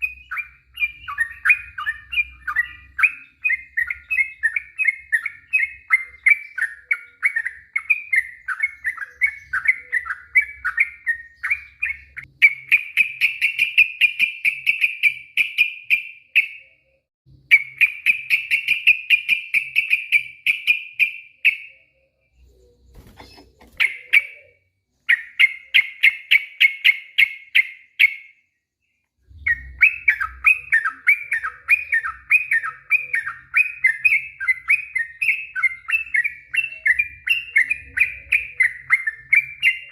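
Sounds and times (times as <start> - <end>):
bulbul chirping: 22.8 - 28.3.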